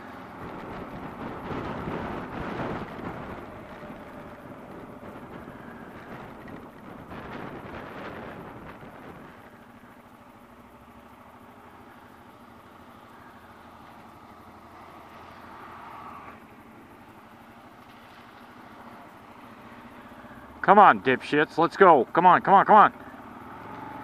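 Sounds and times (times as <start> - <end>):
motorcycle engine idling: 0.0 - 24.0
wind noise: 0.4 - 9.6.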